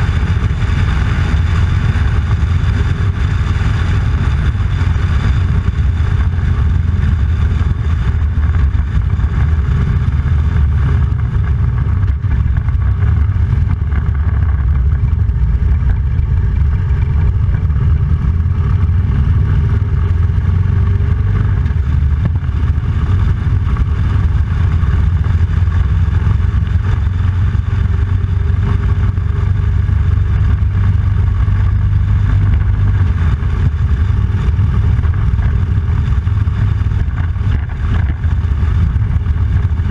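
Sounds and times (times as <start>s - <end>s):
motorcycle engine rumbling: 0.0s - 39.9s.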